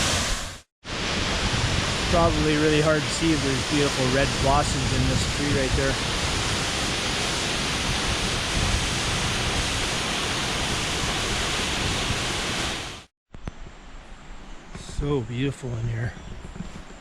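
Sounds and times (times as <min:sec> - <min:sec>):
waterfall roaring: 0:00.9 - 0:13.1.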